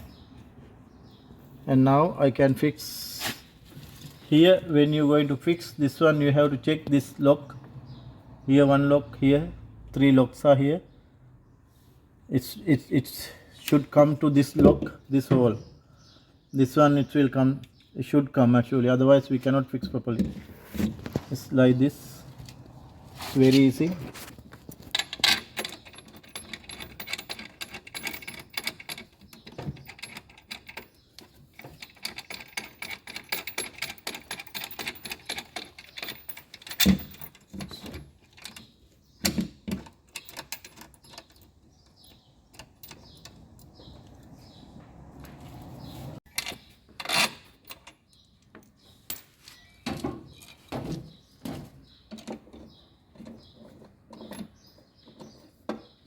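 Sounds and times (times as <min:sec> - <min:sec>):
tools and parts clicking and rattling: 0:03.4 - 0:05.3, 0:19.2 - 0:56.0.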